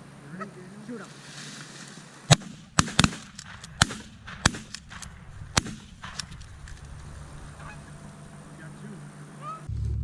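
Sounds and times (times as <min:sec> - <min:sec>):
shotgun shots: 0:02.3 - 0:06.4.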